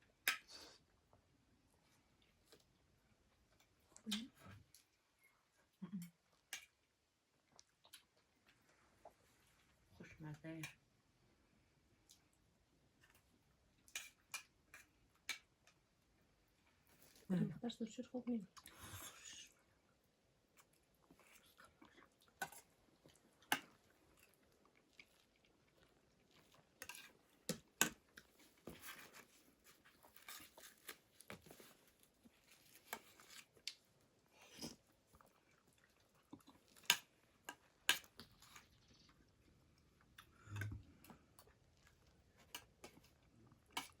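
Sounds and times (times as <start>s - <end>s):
people chewing and biting: 20.5s - 44.0s.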